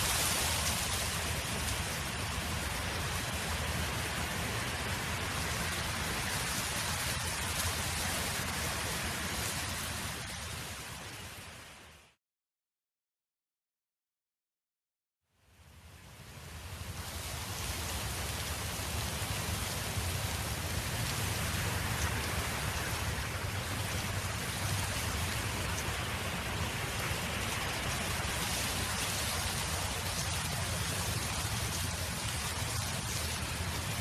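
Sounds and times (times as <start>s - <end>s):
wind blowing: 16.6s - 34.0s.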